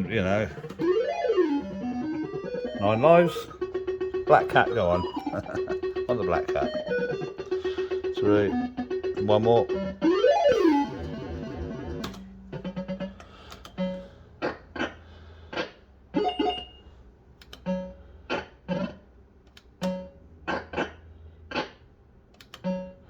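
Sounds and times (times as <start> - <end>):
steady electrical hum: 0.0 - 23.0
sharp clicks: 11.9 - 13.9, 17.4 - 17.7, 19.4 - 20.6, 22.3 - 22.8
fruit machine bleeps and tones: 16.2 - 16.9.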